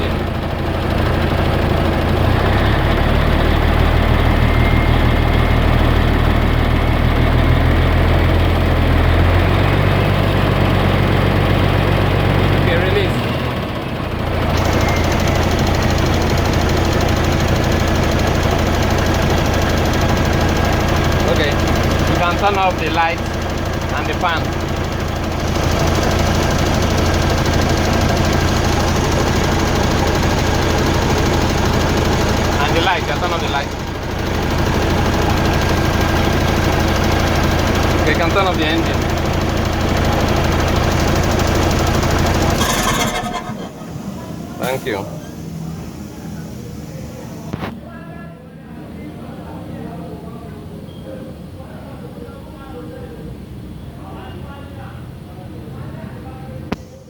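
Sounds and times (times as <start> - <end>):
truck diesel engine at raised revs: 0.0 - 47.8.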